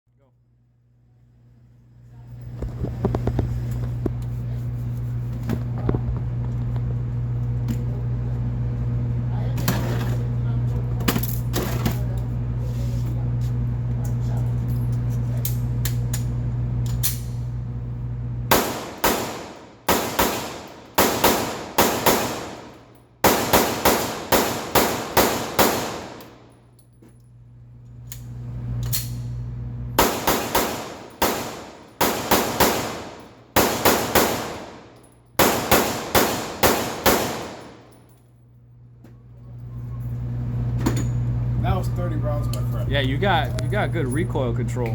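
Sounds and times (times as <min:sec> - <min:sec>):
low hum: 0:00.3 - 0:44.9
pistol shots ringing: 0:18.5 - 0:26.5, 0:30.0 - 0:38.0.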